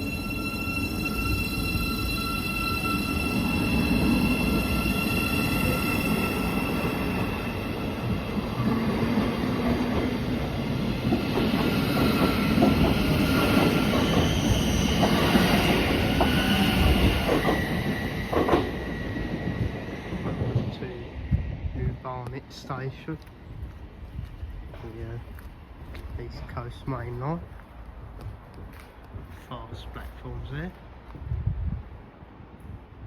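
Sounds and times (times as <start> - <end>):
train high whine: 0.0 - 21.6
train rumbling and wheel clatter: 0.0 - 33.0.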